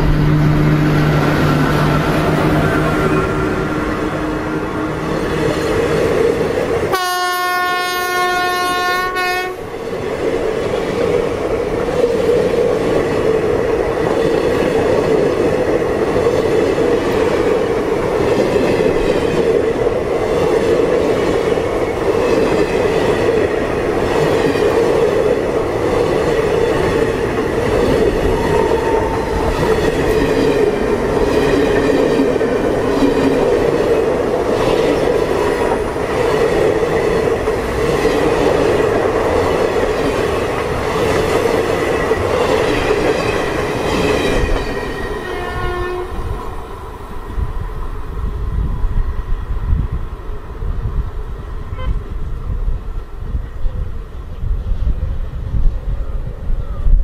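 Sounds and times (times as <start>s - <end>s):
train horn steady note: 0.0s - 5.3s, 6.9s - 9.7s, 28.1s - 30.2s, 45.1s - 46.6s, 51.7s - 52.2s
train wheels rumbling on rails: 0.0s - 57.0s.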